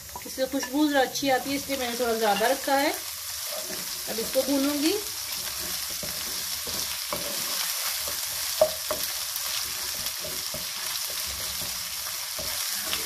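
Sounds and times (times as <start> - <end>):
onions sizzling in a pan: 0.0 - 13.0
wooden spatula scraping pan: 3.4 - 13.0
spatula tapping pan: 5.4 - 13.0.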